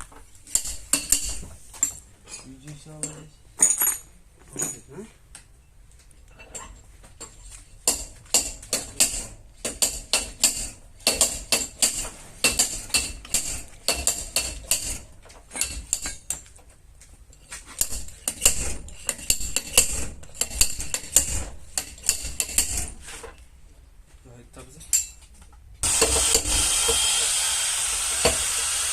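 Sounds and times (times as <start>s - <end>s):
hammer tapping sheet metal: 7.8s - 15.0s.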